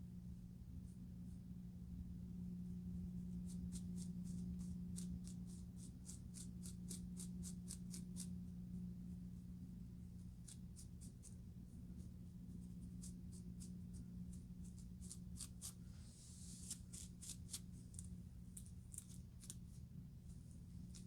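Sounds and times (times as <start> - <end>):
steady low hum: 0.0 - 21.0
scratching hair on scalp: 10.2 - 19.8.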